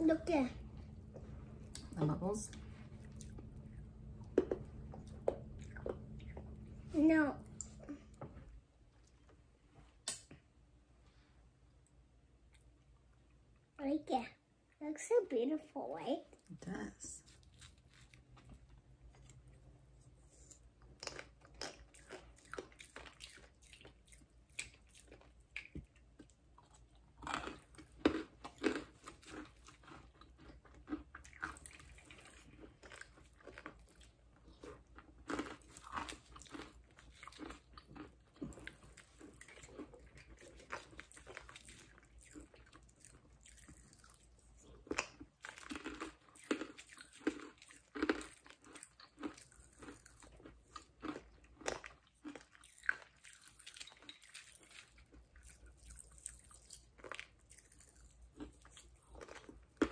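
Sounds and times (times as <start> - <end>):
quiet chewing: 0.5 - 10.4, 17.1 - 59.9
candy crunching: 20.3 - 59.9.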